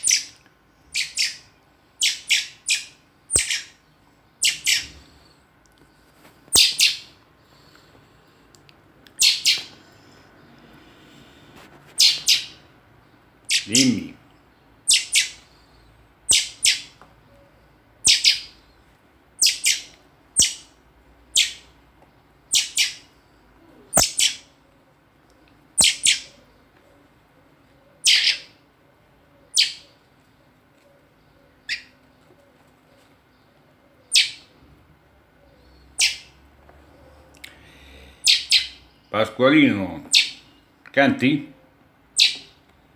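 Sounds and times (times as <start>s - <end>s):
young bird chirping: 0.0s - 5.3s, 6.5s - 7.2s, 9.1s - 10.2s, 11.9s - 12.7s, 13.4s - 14.0s, 14.8s - 18.8s, 19.4s - 21.7s, 22.5s - 24.6s, 25.8s - 26.6s, 27.8s - 28.6s, 29.4s - 30.0s, 31.2s - 32.0s, 33.0s - 34.7s, 35.4s - 36.4s, 37.8s - 39.1s, 40.1s - 40.7s, 42.2s - 42.6s.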